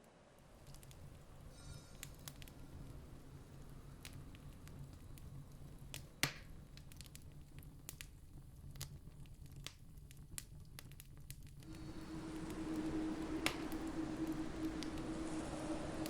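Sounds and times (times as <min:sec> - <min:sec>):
campfire crackling: 0:00.2 - 0:16.0
low steady rumble: 0:11.6 - 0:16.0.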